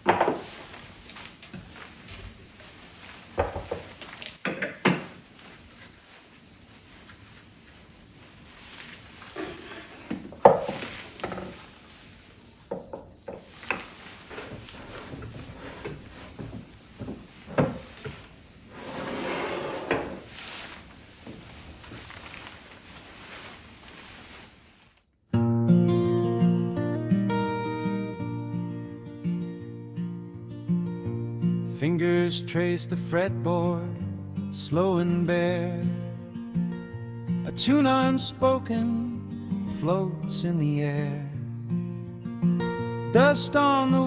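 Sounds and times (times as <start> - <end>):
rubbing or rustling: 0.0 - 12.7, 13.3 - 25.2.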